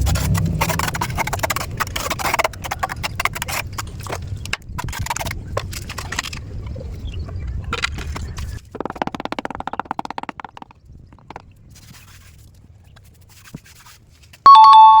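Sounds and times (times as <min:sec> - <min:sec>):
two-pitch electronic tone: 0:14.5 - 0:15.0.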